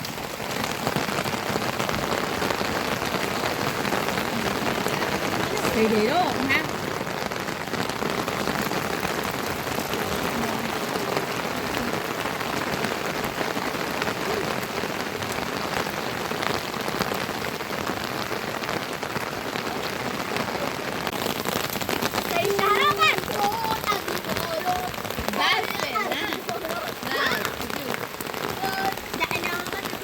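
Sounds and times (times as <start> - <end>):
rain pattering: 0.0 - 30.0.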